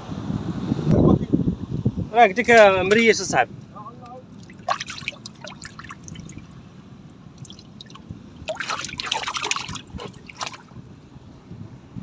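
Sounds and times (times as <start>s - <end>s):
water trickling and splashing: 4.3s - 10.8s.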